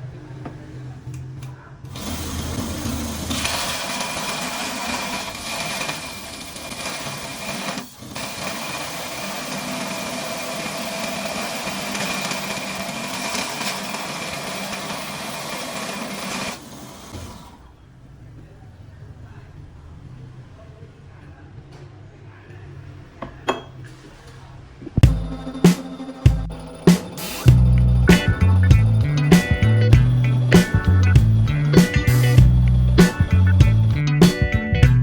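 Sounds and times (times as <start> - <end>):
electric power tool whining: 1.9 - 17.7, 25.0 - 33.9.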